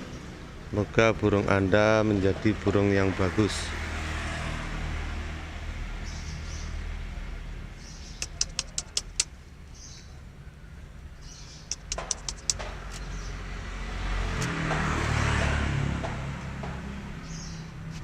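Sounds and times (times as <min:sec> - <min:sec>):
vehicle passing: 0:00.0 - 0:09.4, 0:11.7 - 0:18.0
low rumble of road traffic: 0:00.0 - 0:18.0
runs of sharp ticks: 0:08.2 - 0:09.4, 0:11.7 - 0:13.1.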